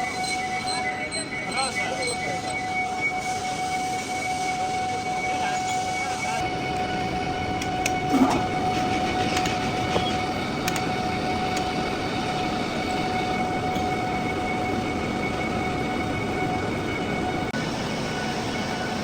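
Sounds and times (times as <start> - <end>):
metal lathe running: 6.4 - 19.0
sharp clicks: 9.2 - 11.8.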